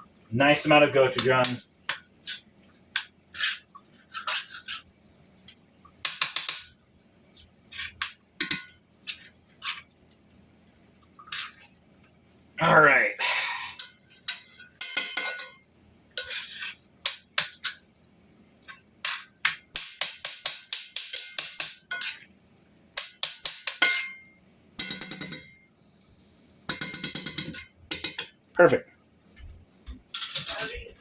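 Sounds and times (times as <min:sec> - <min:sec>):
metal utensil scraping in a bowl: 0:03.3 - 0:04.9, 0:11.1 - 0:11.8, 0:13.8 - 0:15.6, 0:16.2 - 0:17.8, 0:21.0 - 0:22.3, 0:30.1 - 0:30.8.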